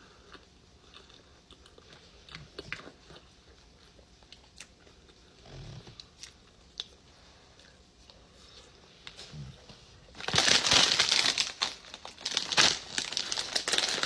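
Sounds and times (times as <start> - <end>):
person chewing food: 0.0 - 8.8.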